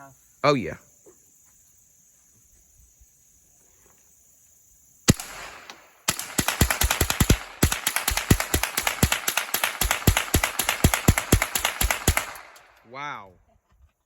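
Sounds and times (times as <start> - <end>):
rapid gunfire: 5.1 - 12.6
gunshots: 5.1 - 12.7.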